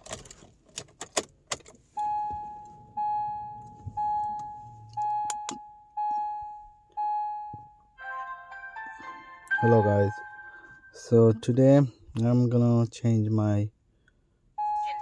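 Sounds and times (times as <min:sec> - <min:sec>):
sharp clicks and rattles: 0:00.0 - 0:01.8
car warning chime dinging: 0:02.0 - 0:08.2, 0:09.4 - 0:11.8.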